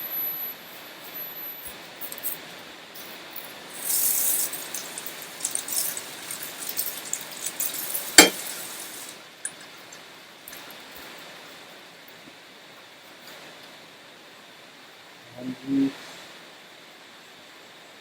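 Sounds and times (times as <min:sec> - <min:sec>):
light clicks and clinks: 0:02.0 - 0:10.8
brief hiss: 0:07.4 - 0:09.2.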